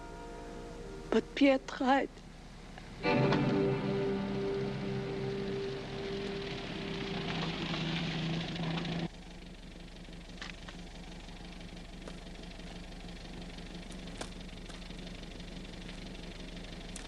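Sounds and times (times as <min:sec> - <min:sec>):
car engine idling: 0:00.0 - 0:17.0
background music: 0:03.0 - 0:07.2.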